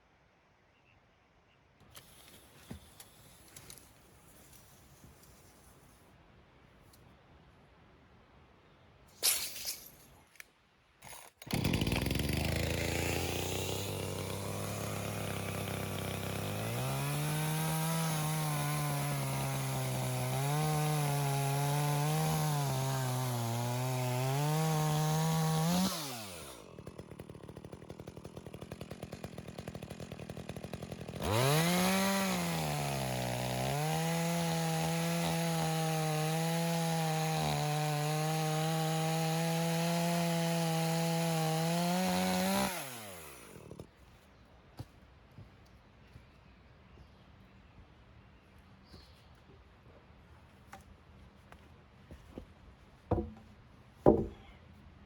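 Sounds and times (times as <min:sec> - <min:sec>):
chainsaw cutting wood: 0:01.9 - 0:05.3, 0:11.0 - 0:43.9, 0:53.1 - 0:54.5.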